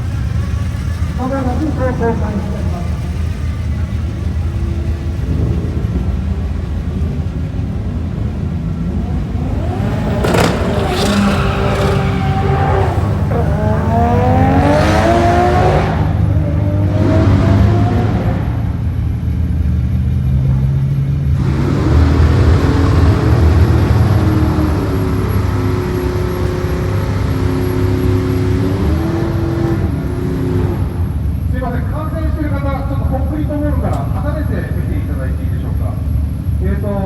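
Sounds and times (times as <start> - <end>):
race car engines revving: 0.0 - 37.0.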